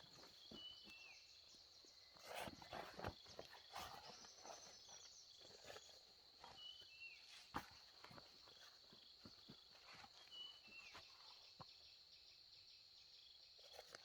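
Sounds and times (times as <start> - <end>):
bird chirps: 0.0 - 7.4.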